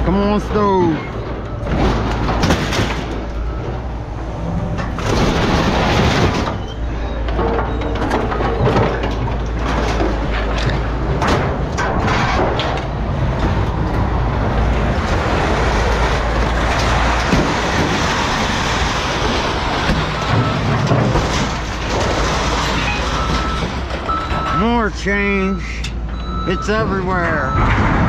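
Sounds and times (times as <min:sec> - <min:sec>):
heavy machinery rumbling with rattling: 0:00.0 - 0:28.0.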